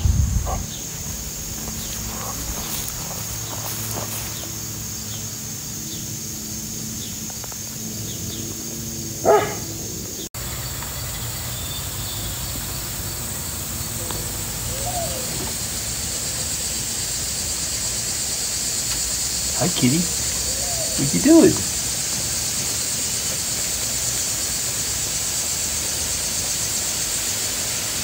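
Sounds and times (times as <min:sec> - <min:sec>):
outdoor background hiss: 0:00.0 - 0:28.0
dog barking: 0:00.4 - 0:00.7, 0:09.2 - 0:09.8.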